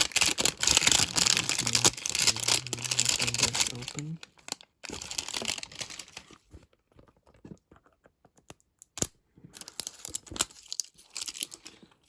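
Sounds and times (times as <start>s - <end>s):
wrappers crinkling: 0.0s - 6.4s, 9.6s - 11.8s.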